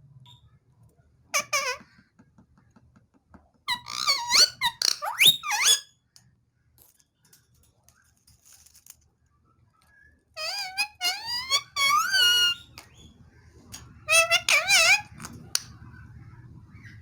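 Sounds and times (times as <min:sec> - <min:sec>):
parrot chirps and squawks: 0:01.4 - 0:01.9, 0:03.7 - 0:05.9, 0:10.4 - 0:12.8, 0:14.0 - 0:15.7.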